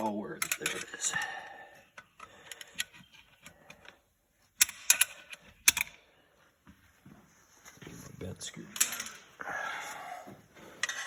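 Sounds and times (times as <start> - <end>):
metal tools clinking: 0.4 - 1.3.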